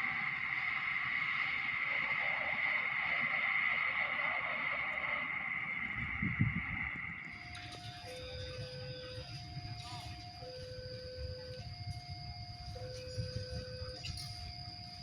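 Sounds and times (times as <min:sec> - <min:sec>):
high-pitched rail ring: 0:07.4 - 0:15.0.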